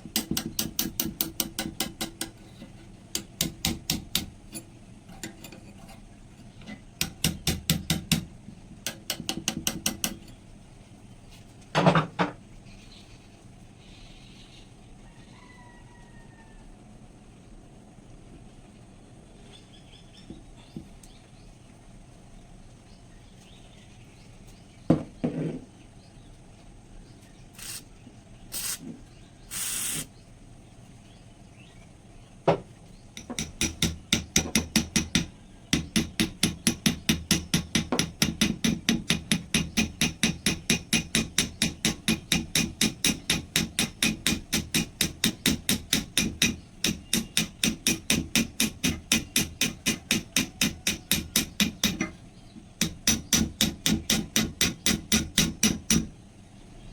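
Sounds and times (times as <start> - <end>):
hand tool striking metal: 0.0 - 2.4, 3.1 - 5.6, 6.6 - 10.4, 33.2 - 52.2, 52.8 - 56.1.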